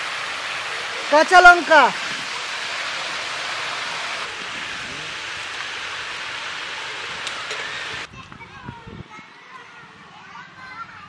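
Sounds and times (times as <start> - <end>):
vegetables sizzling in hot oil: 0.0 - 8.1.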